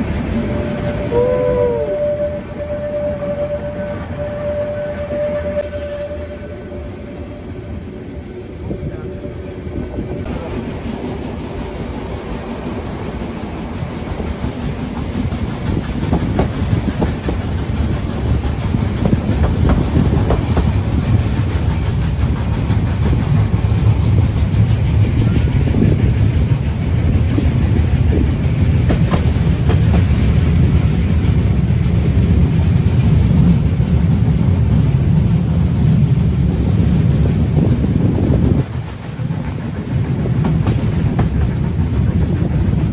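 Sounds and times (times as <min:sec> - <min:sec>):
steam train rumbling: 0:00.0 - 0:42.9
wheels clicking on rails: 0:10.2 - 0:42.9.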